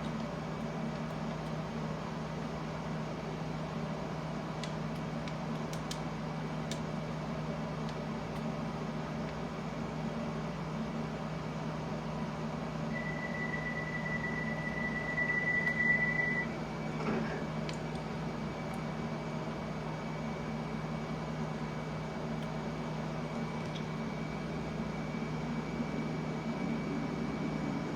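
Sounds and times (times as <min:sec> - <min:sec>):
underground train hum: 0:00.0 - 0:27.9
high-pitched steady tone: 0:12.9 - 0:16.5.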